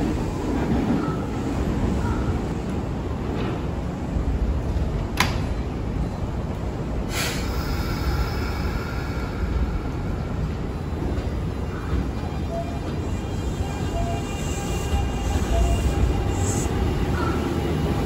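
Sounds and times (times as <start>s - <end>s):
train low rumble: 0.0s - 18.0s
air hiss: 7.1s - 10.2s.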